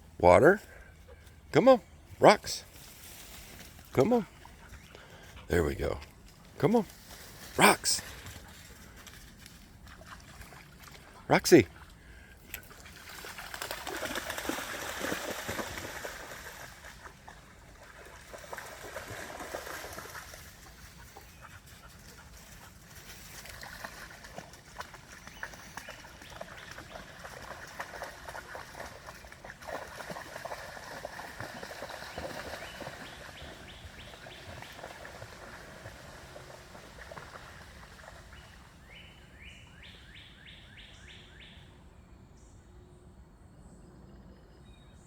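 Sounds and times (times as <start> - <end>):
creek water trickling: 0.0 - 39.4.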